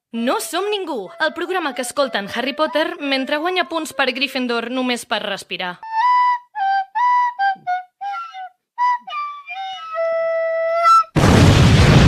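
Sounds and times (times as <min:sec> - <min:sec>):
flute melody: 0:00.6 - 0:04.4, 0:05.8 - 0:11.2
loud explosion blast: 0:11.2 - 0:12.0.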